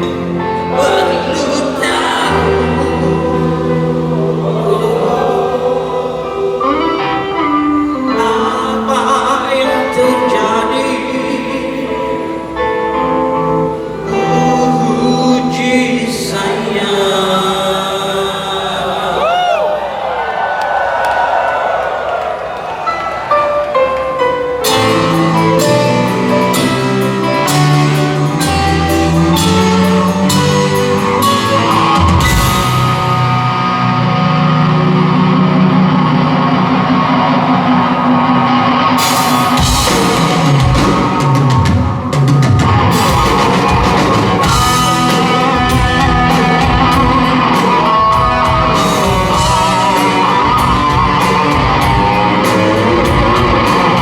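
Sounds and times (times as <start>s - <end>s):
rock band playing: 0.0s - 17.3s, 22.6s - 54.0s
electric guitar note bending: 24.6s - 54.0s.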